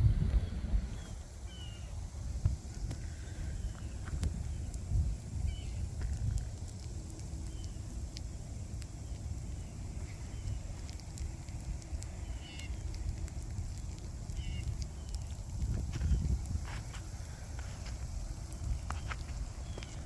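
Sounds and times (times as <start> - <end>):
wind buffeting microphone: 0.0 - 20.0
light ticks: 3.7 - 9.4, 10.2 - 20.0.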